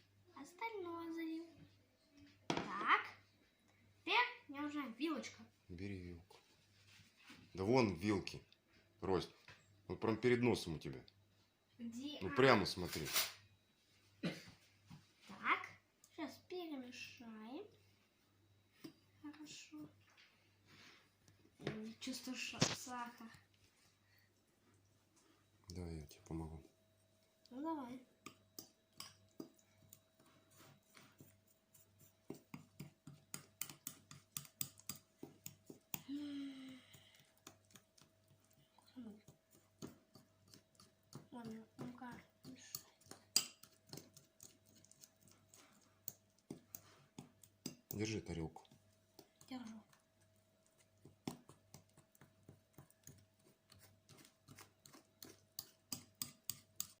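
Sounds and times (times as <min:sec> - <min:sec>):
fork clicking against dish: 0:54.8 - 0:57.0.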